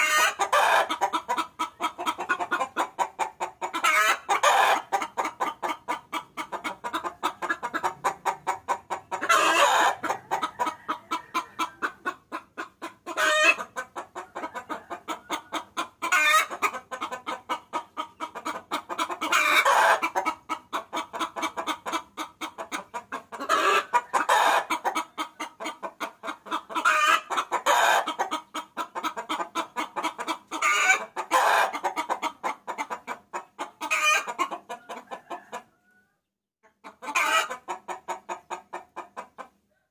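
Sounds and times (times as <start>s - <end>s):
hen cackling: 0.0s - 39.6s
hen drawn-out call: 7.7s - 12.1s.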